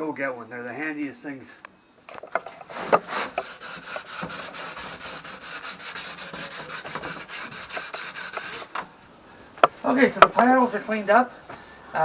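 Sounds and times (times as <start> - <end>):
sanding wood: 2.7 - 8.8.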